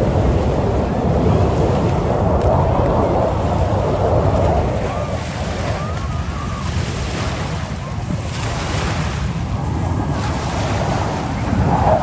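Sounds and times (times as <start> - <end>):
wind buffeting the microphone: 0.0 - 12.0.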